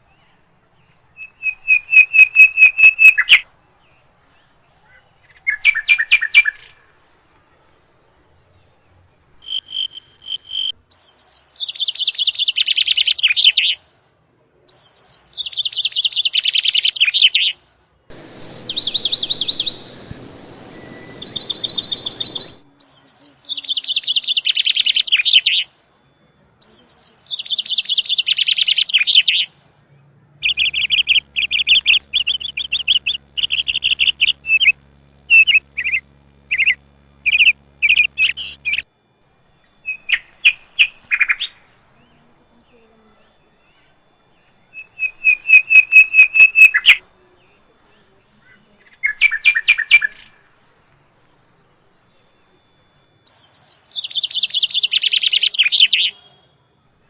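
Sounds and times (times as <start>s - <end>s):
bird trilled chirping: 1.2s - 3.4s, 18.1s - 22.6s, 30.4s - 47.6s, 52.5s - 56.2s
steady low hum: 18.1s - 22.8s, 30.4s - 53.4s.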